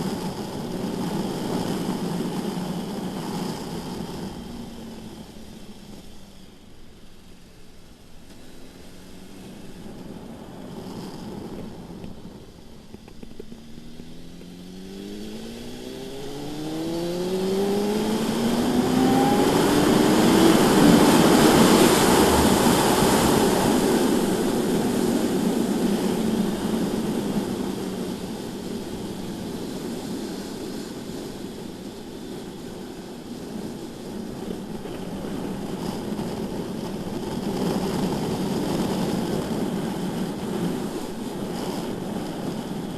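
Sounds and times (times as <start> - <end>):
motorcycle engine accelerating: 0.0 - 42.9
wind rushing: 14.0 - 32.2.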